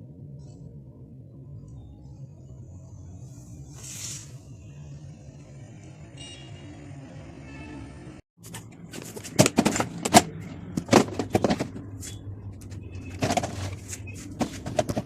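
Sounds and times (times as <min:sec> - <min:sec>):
packages being handled: 0:08.4 - 0:15.0.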